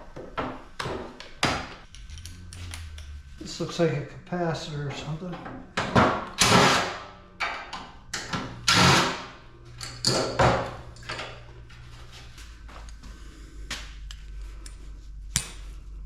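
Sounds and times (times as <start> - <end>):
metal parts clanking and scraping: 5.0 - 11.5.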